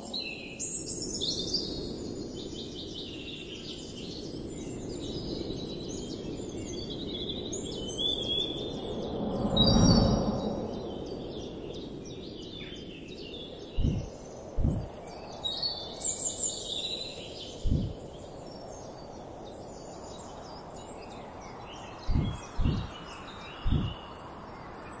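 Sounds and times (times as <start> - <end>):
birds chirping and trilling: 0.0 - 25.0
short low thumps: 13.8 - 14.9, 17.6 - 18.0, 22.1 - 23.0, 23.6 - 24.0.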